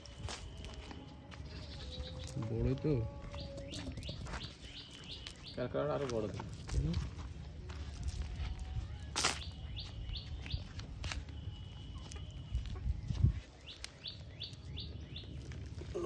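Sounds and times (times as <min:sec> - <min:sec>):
bird chirping: 0:01.5 - 0:06.2, 0:09.3 - 0:16.0.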